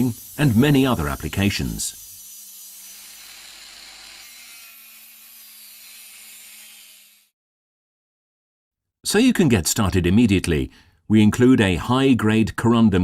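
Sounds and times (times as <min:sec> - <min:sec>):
angle grinder grinding: 0:00.0 - 0:07.3.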